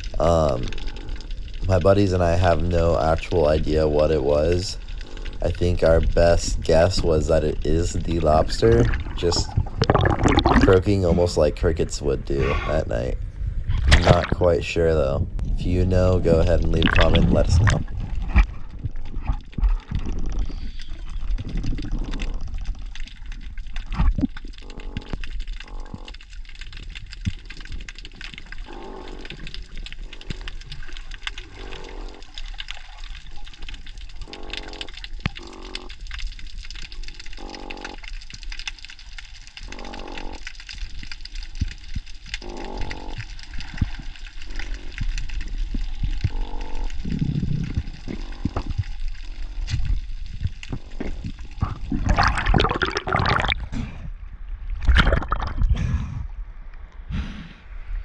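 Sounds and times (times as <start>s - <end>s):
crackle of small clicks: 0.0s - 11.8s, 15.4s - 53.2s
underwater croaks: 0.0s - 53.7s, 54.8s - 55.8s
low rush of water: 5.5s - 13.2s, 16.1s - 18.1s.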